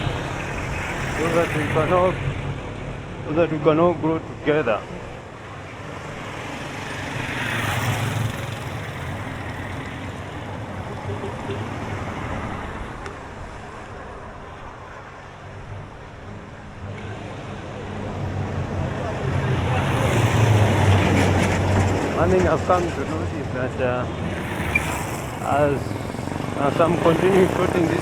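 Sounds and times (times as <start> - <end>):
road noise hum: 0.0 - 28.0
vehicle engines: 0.0 - 28.0
vehicle passing close: 6.1 - 13.0, 17.4 - 28.0.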